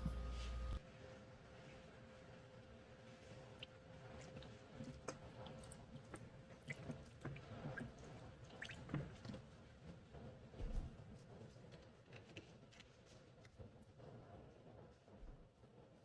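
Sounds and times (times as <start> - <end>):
liquid dripping: 3.6 - 9.2.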